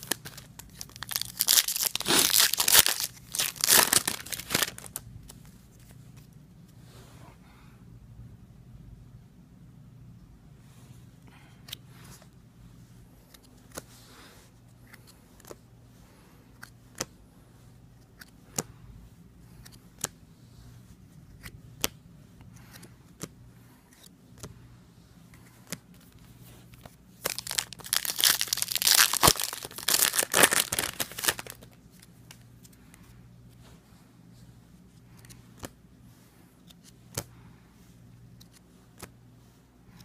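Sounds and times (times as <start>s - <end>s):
wrapper crinkling and tearing: 0.0s - 5.0s, 27.2s - 31.8s.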